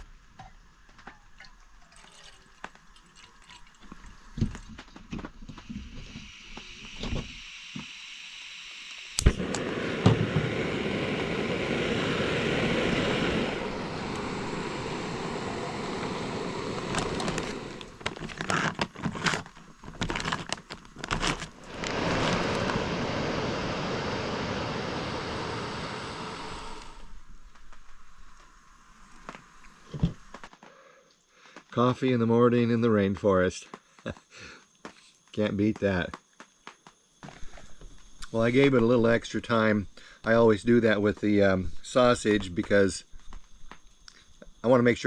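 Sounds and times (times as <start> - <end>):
clicks and crackles: 0.0 - 7.9, 8.9 - 10.4, 16.0 - 22.8, 26.8 - 31.8
gas burner hissing: 3.8 - 30.6, 37.2 - 45.0
stove igniter click: 8.9 - 12.1.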